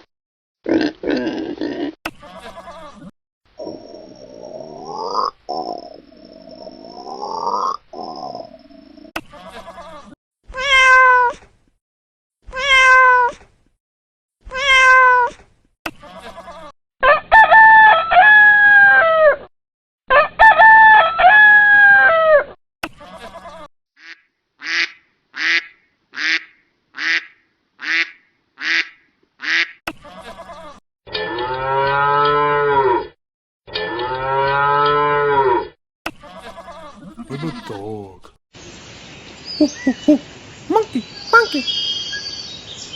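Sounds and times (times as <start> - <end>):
animal calls: 36.6 - 38.3, 39.6 - 41.7.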